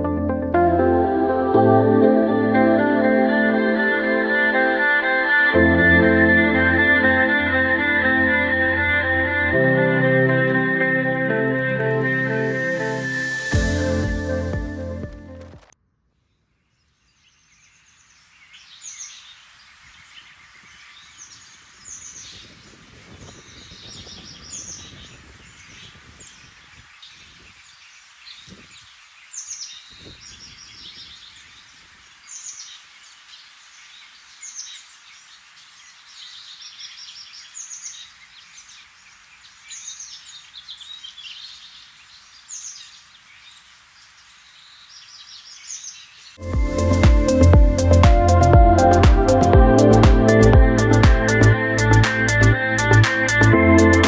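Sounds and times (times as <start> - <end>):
low rumbles: 9.8 - 15.7, 46.4 - 54.0
outdoor hiss: 10.4 - 15.8, 17.0 - 53.5
small birds chirping: 16.2 - 48.0.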